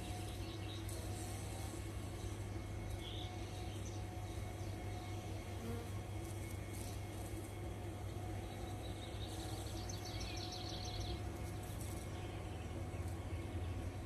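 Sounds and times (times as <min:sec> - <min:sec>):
low outdoor background hum: 0:00.0 - 0:14.0.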